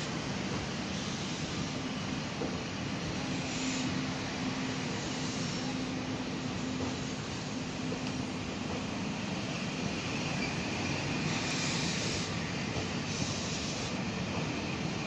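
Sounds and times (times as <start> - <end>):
train wheel rumble: 0.0 - 15.0
short hissing surges: 3.2 - 6.0, 11.1 - 14.1.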